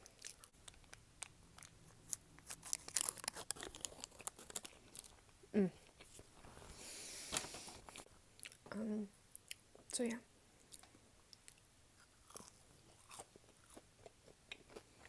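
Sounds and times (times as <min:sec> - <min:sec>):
food crunching: 0:00.0 - 0:06.3, 0:10.6 - 0:15.0
paper wrapper crinkling: 0:01.6 - 0:05.2, 0:06.0 - 0:08.0.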